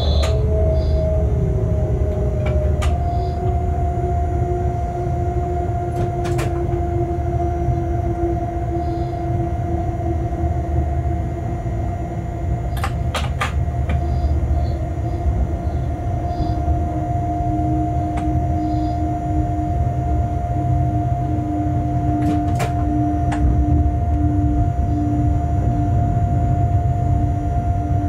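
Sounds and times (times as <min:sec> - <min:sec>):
locomotive low rumble: 0:00.0 - 0:28.0
two-note whine: 0:00.0 - 0:28.0
sharp clicks and knocks: 0:12.8 - 0:14.0, 0:22.2 - 0:23.5.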